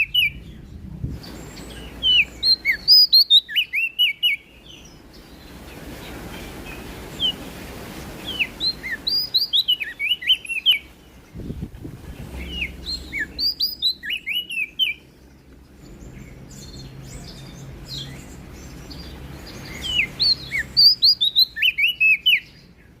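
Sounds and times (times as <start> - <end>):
bird chirping high notes: 12.2 - 15.1.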